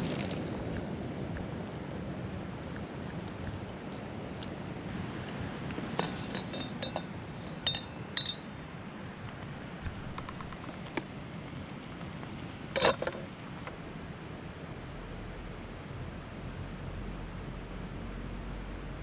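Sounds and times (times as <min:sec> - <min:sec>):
steady hiss: 0:01.0 - 0:13.7
cookware clinking: 0:05.9 - 0:08.7, 0:12.8 - 0:13.3.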